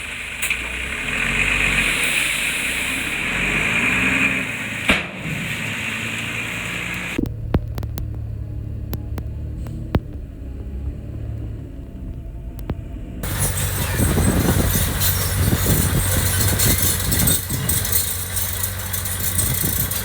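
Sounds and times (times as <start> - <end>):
diesel machinery engine running: 5.8 - 20.0
sharp metal clanks: 13.2 - 20.0.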